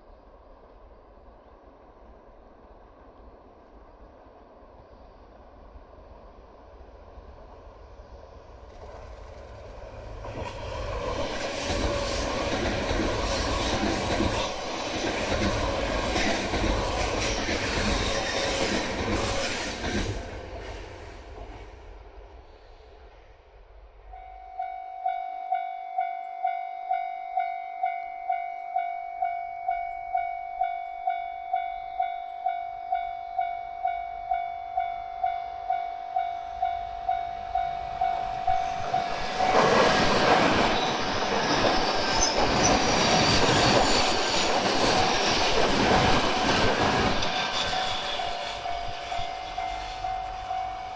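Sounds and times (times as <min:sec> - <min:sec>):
train rumbling past: 0:00.0 - 0:50.9.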